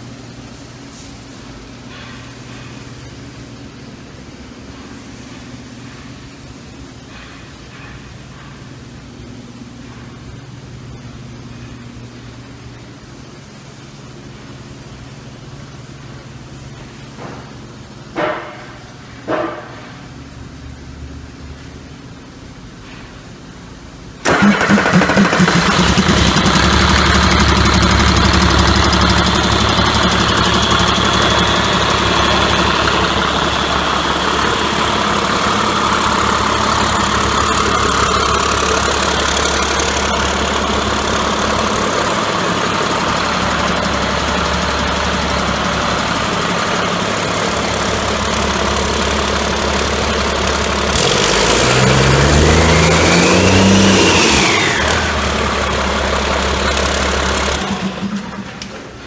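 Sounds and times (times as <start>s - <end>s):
diesel engine idling: 24.2s - 59.0s
engine revving: 24.3s - 58.7s.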